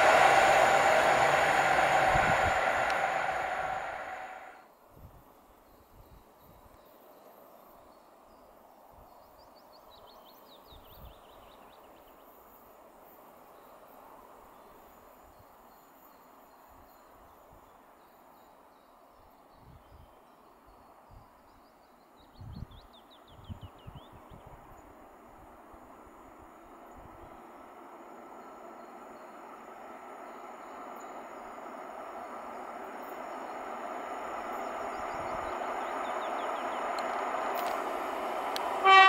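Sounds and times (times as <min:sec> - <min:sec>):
wind buffeting microphone: 0:00.0 - 0:04.5
faint outdoor ambience: 0:00.0 - 0:39.0
songbird singing: 0:27.6 - 0:39.0.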